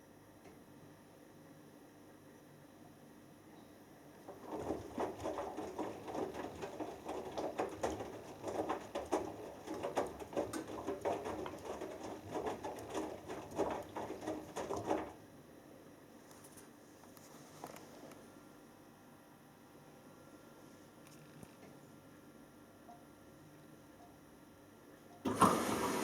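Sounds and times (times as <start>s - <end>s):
washing machine drum turning: 4.2s - 15.2s, 25.2s - 26.0s
water splashing inside drum: 4.2s - 15.2s, 25.3s - 26.0s.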